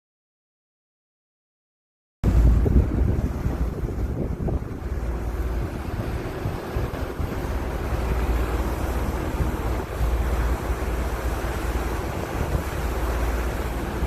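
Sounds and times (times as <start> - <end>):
wind buffeting microphone: 2.2 - 14.0.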